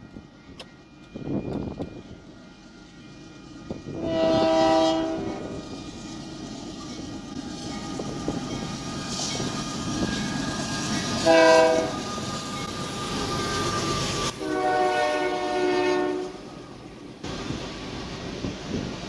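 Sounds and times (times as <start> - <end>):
passing train rumble: 0.0 - 19.0
locomotive air horn blasts: 4.0 - 5.6, 11.2 - 12.0, 14.3 - 16.4.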